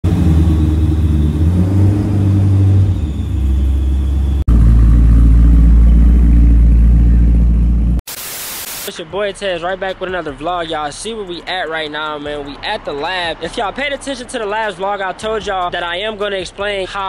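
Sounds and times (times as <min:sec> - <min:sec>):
car engine running: 0:00.0 - 0:08.0.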